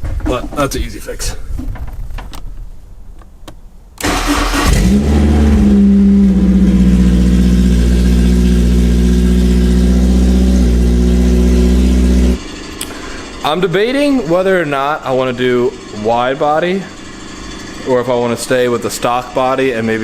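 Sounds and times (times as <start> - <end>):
car engine starting and running: 4.0 - 12.9.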